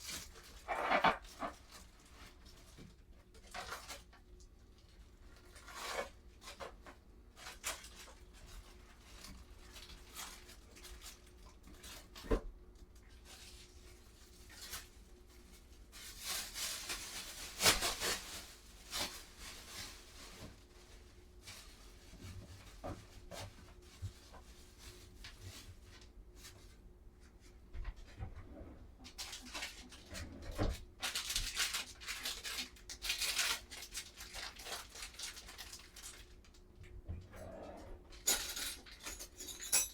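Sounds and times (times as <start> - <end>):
rustling: 13.1 - 36.4.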